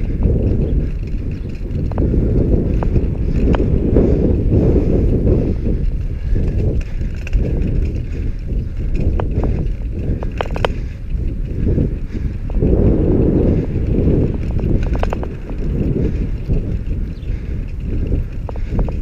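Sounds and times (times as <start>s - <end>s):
bicycle road rumble: 0.0s - 19.0s
wind buffeting microphone: 0.0s - 19.0s
light clicks or rattles: 5.8s - 12.6s, 13.8s - 19.0s.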